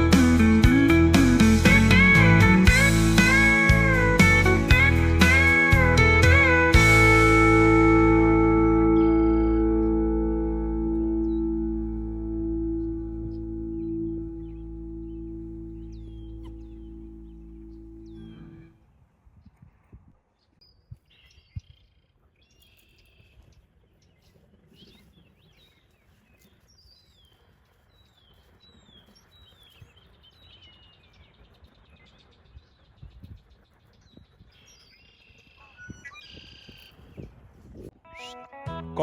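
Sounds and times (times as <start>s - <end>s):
small birds chirping: 8.7s - 18.7s, 19.4s - 38.4s
other bird calls: 9.4s - 18.7s, 24.2s - 37.3s.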